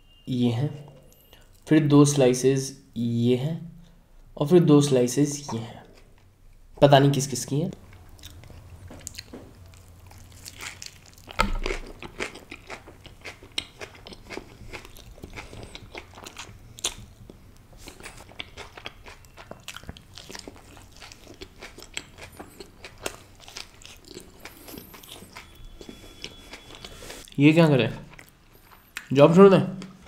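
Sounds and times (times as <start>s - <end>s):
person chewing: 7.7s - 27.4s, 28.1s - 29.1s.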